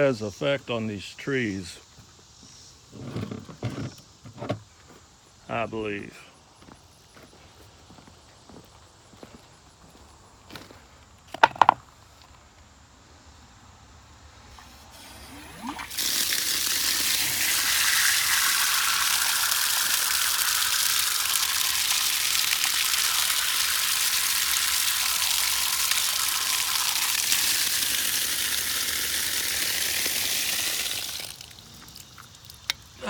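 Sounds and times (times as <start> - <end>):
water spraying onto logs: 14.5 - 33.0.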